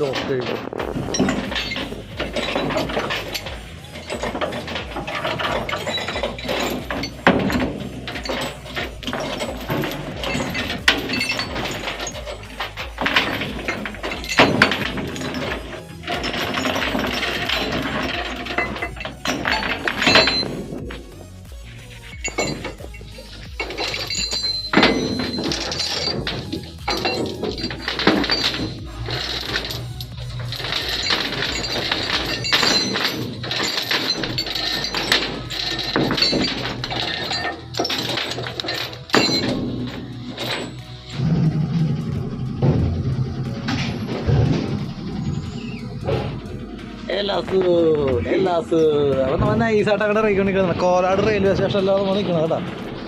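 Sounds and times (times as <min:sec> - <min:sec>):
chain lashings clanking and rattling: 0:00.0 - 0:53.0
metal clinking and clattering: 0:00.0 - 0:53.0
sharp metallic knocks: 0:00.0 - 0:53.0.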